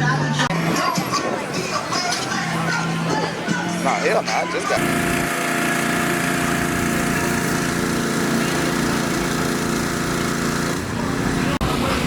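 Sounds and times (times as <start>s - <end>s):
vehicle engine running: 4.6s - 12.0s.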